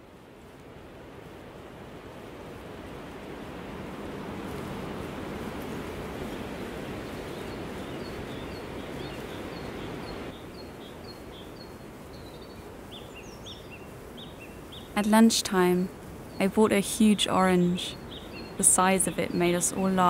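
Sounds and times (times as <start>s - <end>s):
steady rushing noise: 0.0s - 20.0s
lower bird chirps: 7.0s - 15.0s, 17.4s - 20.0s
small bird chirping: 17.9s - 18.7s.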